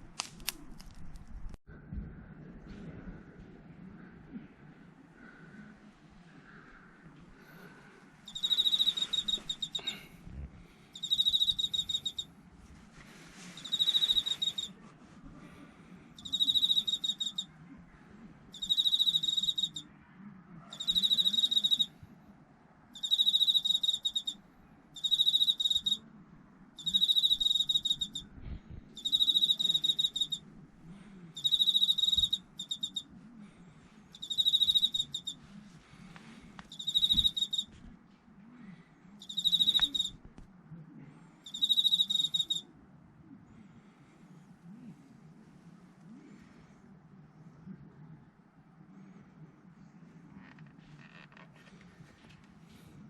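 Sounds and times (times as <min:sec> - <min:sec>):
cricket chirping: 0:08.3 - 0:10.0, 0:11.0 - 0:12.3, 0:13.6 - 0:14.7, 0:16.2 - 0:17.5, 0:18.5 - 0:19.9, 0:20.7 - 0:21.9, 0:23.0 - 0:24.4, 0:25.0 - 0:26.0, 0:26.8 - 0:28.3, 0:29.0 - 0:30.4, 0:31.4 - 0:33.1, 0:34.2 - 0:35.4, 0:36.7 - 0:37.7, 0:39.2 - 0:40.2, 0:41.4 - 0:42.6.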